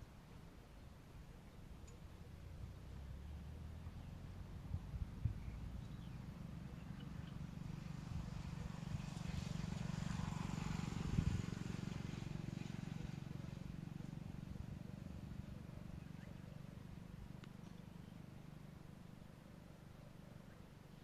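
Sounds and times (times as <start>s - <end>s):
steady low hum: 0.0s - 21.0s
motor vehicle passing by: 2.3s - 21.0s
faint bird chirps: 15.0s - 18.6s.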